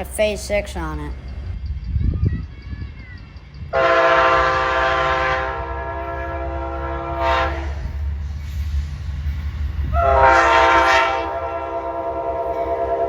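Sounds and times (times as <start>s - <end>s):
train rumble: 0.0s - 13.0s
locomotive air horn blast: 3.8s - 8.0s, 9.9s - 13.0s.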